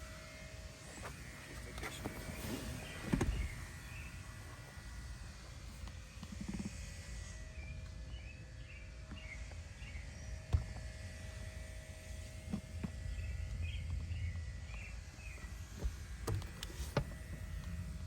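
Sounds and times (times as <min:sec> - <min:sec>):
birds chirping: 0:12.5 - 0:17.1.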